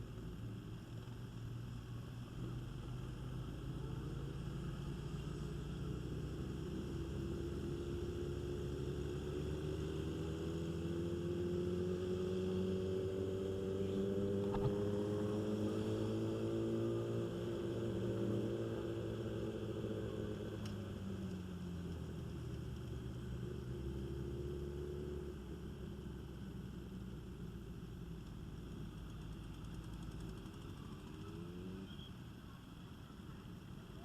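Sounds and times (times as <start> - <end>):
motorcycle engine at low speed: 0.0 - 34.0
brief click: 14.4 - 14.8.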